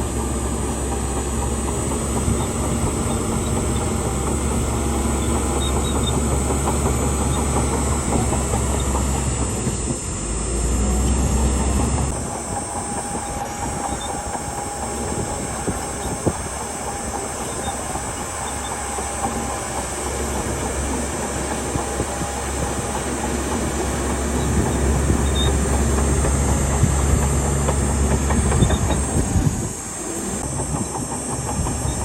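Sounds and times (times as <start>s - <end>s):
diesel engine running: 0.0s - 32.0s
steel tracks clattering: 12.0s - 32.0s.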